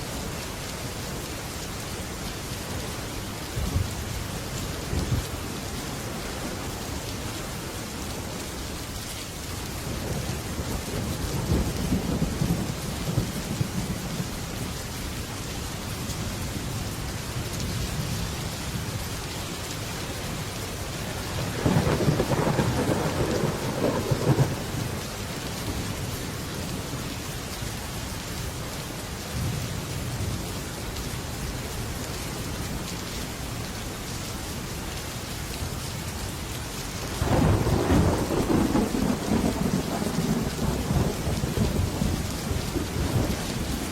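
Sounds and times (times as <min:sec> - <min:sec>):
heavy rain on a metal roof: 0:00.0 - 0:43.9
thunder rumbling: 0:21.1 - 0:25.9, 0:37.2 - 0:43.9.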